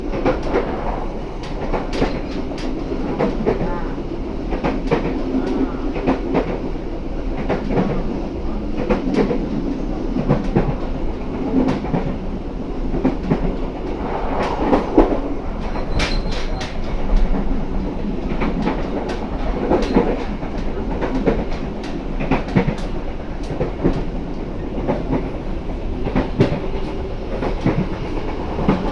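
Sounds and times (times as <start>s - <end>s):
train rumbling on rails: 0.0s - 28.9s
wheels clacking over rail joints: 0.1s - 9.4s, 12.8s - 28.9s
faint high squeal: 15.6s - 16.7s.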